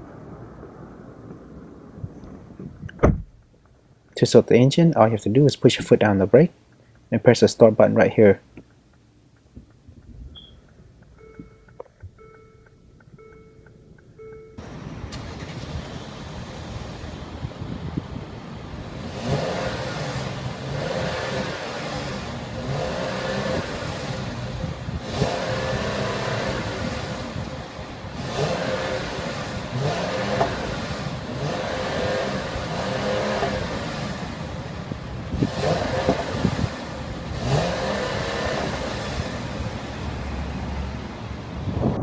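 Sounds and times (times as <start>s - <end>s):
car engine revving in blips: 8.5s - 42.0s.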